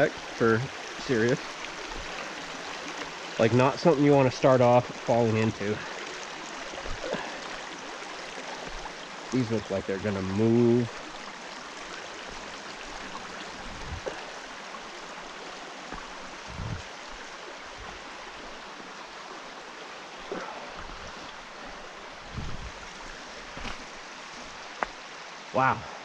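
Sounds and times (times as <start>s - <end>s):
water rushing over rocks: 0.0s - 26.0s
soft dull thumps: 6.8s - 7.4s.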